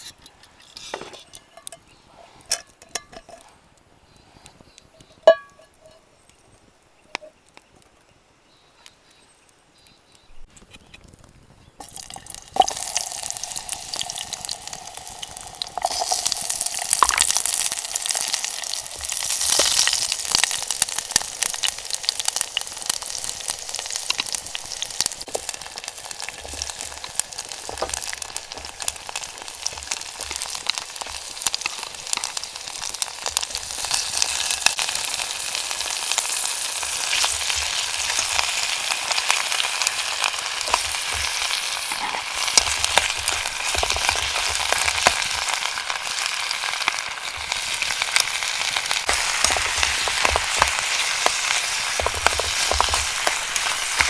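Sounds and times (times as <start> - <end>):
food sizzling in a pot: 11.8 - 54.0.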